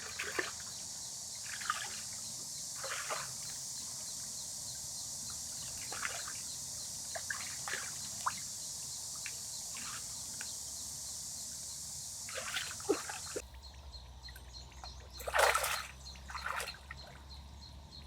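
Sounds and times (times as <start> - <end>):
water dripping and trickling: 14.3 - 17.2.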